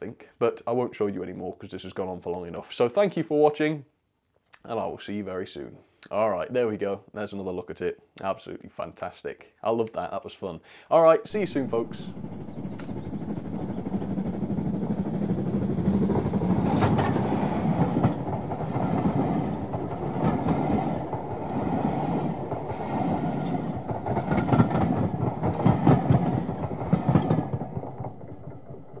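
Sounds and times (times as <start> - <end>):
train wheels clattering over rail joints: 11.3 - 29.0.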